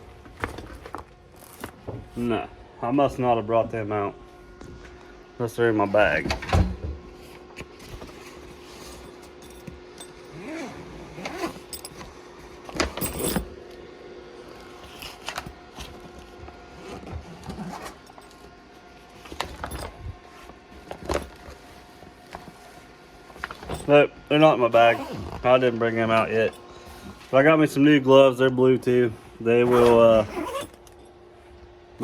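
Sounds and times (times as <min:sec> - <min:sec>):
faint steady hum: 0:00.0 - 0:32.0
rummaging through a bag: 0:00.3 - 0:01.8, 0:07.7 - 0:13.5, 0:14.8 - 0:24.0, 0:29.6 - 0:31.0.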